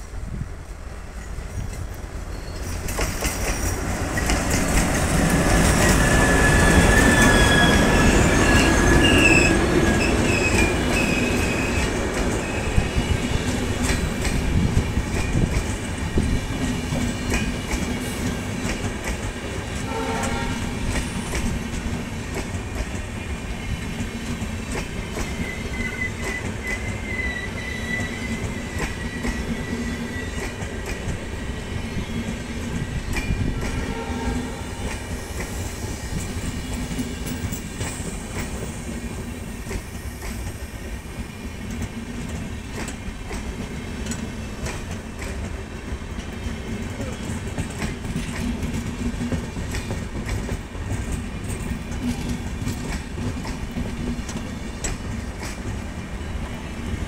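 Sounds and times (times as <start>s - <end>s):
locomotive passing: 0.1s - 39.6s
high wheel squeal: 5.6s - 13.2s, 25.2s - 30.6s.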